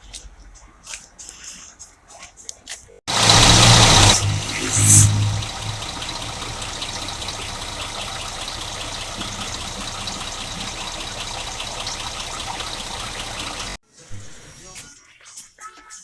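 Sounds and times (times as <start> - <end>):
diesel engine idling: 3.1 - 13.8
light regular ticking: 3.1 - 13.8.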